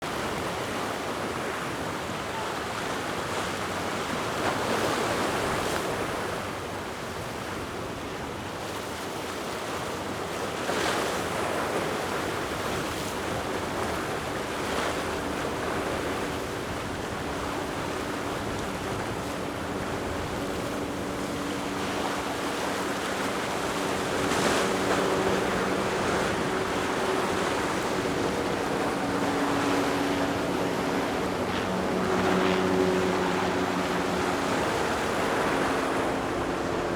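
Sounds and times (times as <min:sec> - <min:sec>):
waves breaking in rough water: 0:00.0 - 0:36.9
boat engine drone: 0:10.0 - 0:36.9
wind buffeting microphone: 0:12.2 - 0:36.9.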